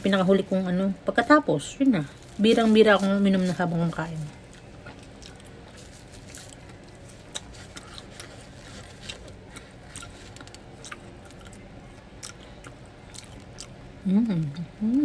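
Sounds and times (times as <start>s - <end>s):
person chewing wetly: 4.4s - 14.6s.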